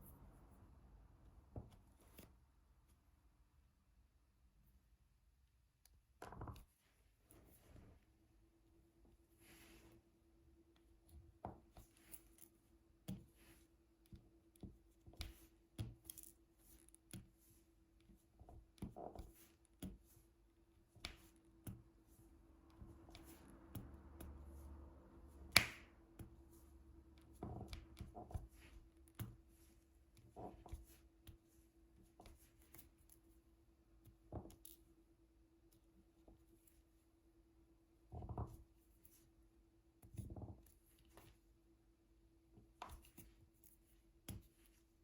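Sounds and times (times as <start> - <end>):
soft clicks and taps of pen: 1.5 - 2.4, 5.8 - 7.5, 10.7 - 20.2, 20.8 - 22.0, 22.6 - 24.8, 25.4 - 33.4, 34.0 - 34.9, 40.0 - 41.4, 42.6 - 44.9.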